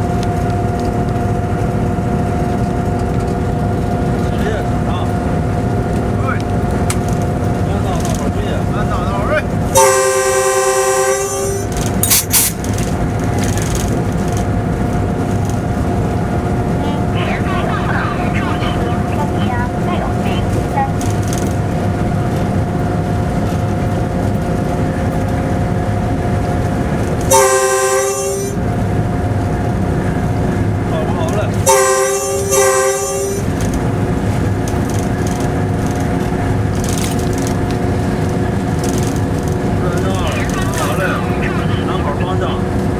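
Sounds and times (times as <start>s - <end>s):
locomotive cab running noise: 0.0s - 42.9s
wheels rumbling on rails: 0.0s - 42.9s
locomotive horn: 9.6s - 12.5s, 15.9s - 21.0s, 26.7s - 29.2s, 31.5s - 34.5s.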